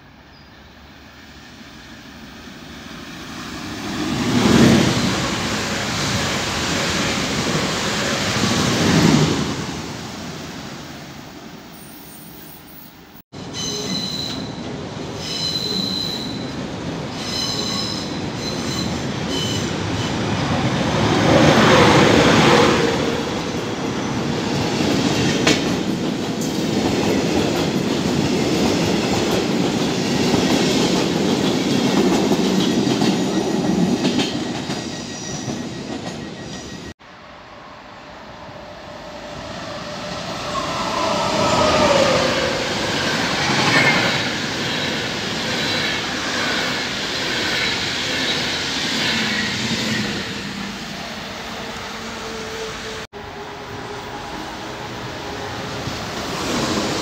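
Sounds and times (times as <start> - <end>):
electric train rolling through: 0.0 - 57.0
train wheels squealing: 11.7 - 20.4, 32.6 - 37.0.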